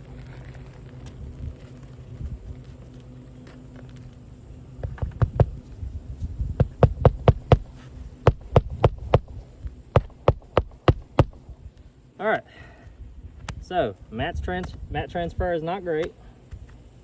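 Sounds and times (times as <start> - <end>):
steady low hum: 0.0 - 17.0
hammer striking nails: 6.6 - 7.7, 8.3 - 9.3, 10.0 - 11.4.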